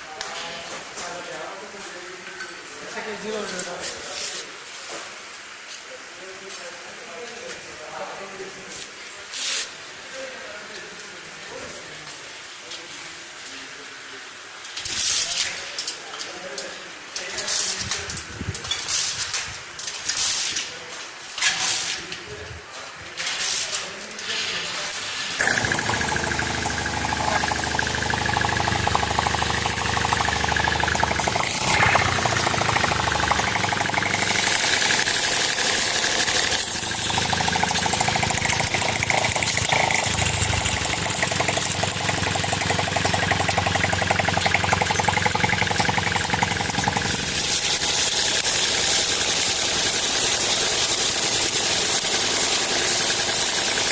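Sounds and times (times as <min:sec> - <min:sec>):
small engine running: 0:25.4 - 0:53.9.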